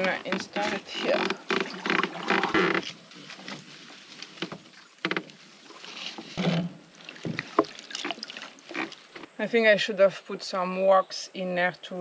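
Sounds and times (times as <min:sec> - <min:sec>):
water sloshing and splashing: 0:00.0 - 0:09.4.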